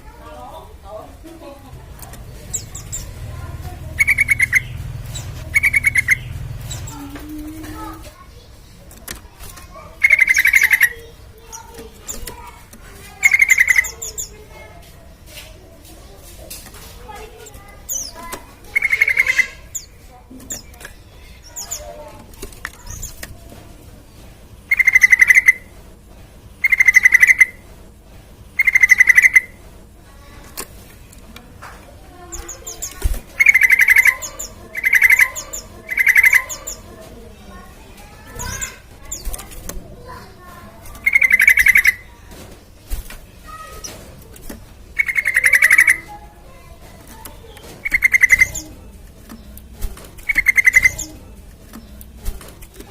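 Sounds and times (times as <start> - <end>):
bird chattering calls: 1.8 - 8.7, 9.6 - 14.7, 17.1 - 23.4, 24.7 - 25.8, 26.6 - 27.7, 28.6 - 29.6, 32.2 - 42.4, 44.8 - 52.8
faint bird calls: 2.0 - 8.8, 9.6 - 14.7, 24.7 - 25.7, 26.6 - 27.6, 28.6 - 29.6, 32.2 - 42.3, 44.9 - 49.6, 50.2 - 52.0.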